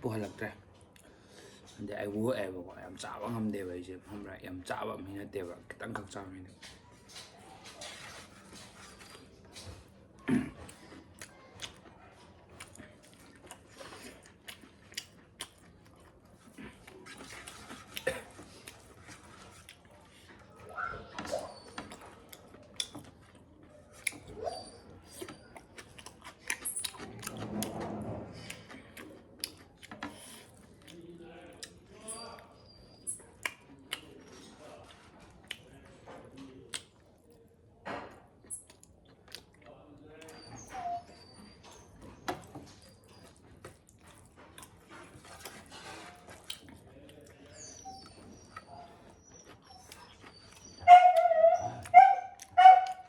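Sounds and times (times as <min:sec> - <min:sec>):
person chewing food: 0:06.6 - 0:27.7, 0:28.4 - 0:32.2, 0:33.1 - 0:37.5, 0:38.3 - 0:40.4, 0:41.6 - 0:53.0
mouth clicks and smacks: 0:12.6 - 0:15.7, 0:21.8 - 0:23.2, 0:24.0 - 0:24.3, 0:35.4 - 0:35.7, 0:36.7 - 0:37.0, 0:46.4 - 0:46.8.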